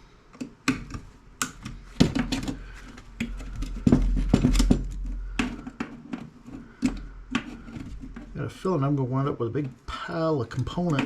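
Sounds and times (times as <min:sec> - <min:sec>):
heavy clunks of handling: 0:01.7 - 0:08.4.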